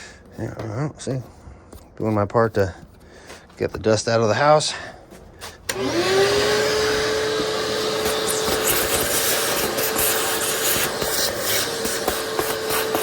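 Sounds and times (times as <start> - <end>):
vacuum cleaner switch click: 5.7 - 6.0
vacuum cleaner motor whining: 5.7 - 13.0.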